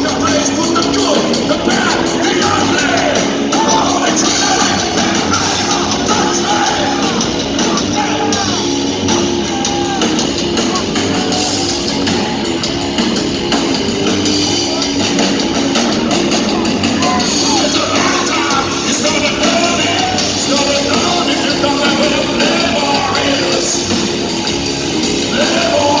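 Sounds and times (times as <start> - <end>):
hard rock band playing live: 0.0 - 26.0.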